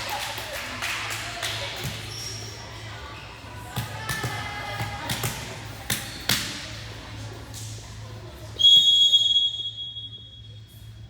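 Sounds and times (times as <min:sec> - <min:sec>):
volleyball hits: 0:03.7 - 0:06.6
referee's whistle blast: 0:08.6 - 0:10.4.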